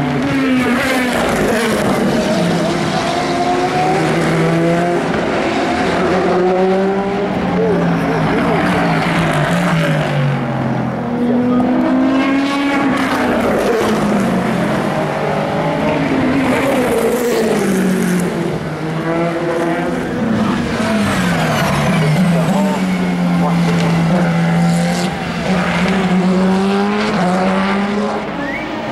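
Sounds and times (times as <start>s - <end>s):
race cars passing at speed: 0.0s - 28.9s.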